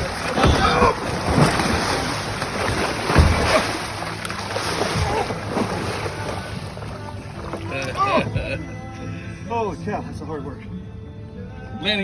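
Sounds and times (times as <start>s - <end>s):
dull thump: 0.0s - 6.2s
water around a boat: 0.0s - 12.0s.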